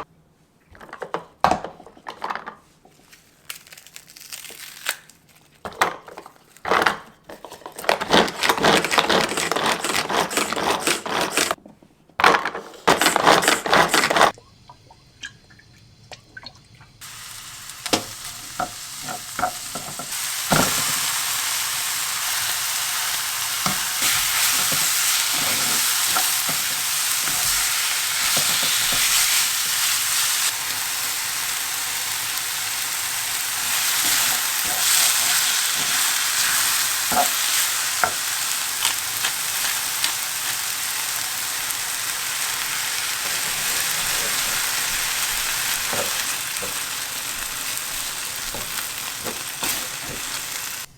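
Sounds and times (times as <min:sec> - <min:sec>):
loud rustling and handling: 0:01.8 - 0:14.3, 0:23.6 - 0:30.6, 0:33.6 - 0:40.9, 0:43.2 - 0:50.9
food sizzling in a frying pan: 0:17.0 - 0:50.9.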